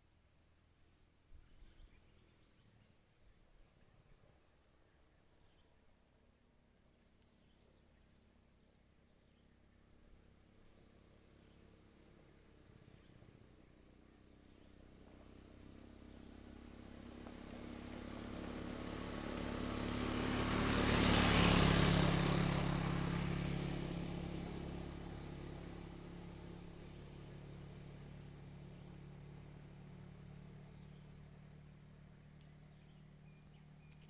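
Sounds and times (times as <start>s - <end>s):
high insect drone: 6.6s - 34.0s
motor vehicle passing: 10.5s - 34.0s.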